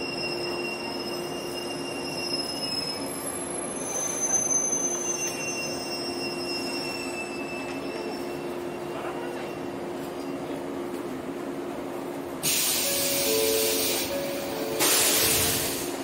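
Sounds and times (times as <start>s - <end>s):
train wheels squealing: 0.0s - 10.5s.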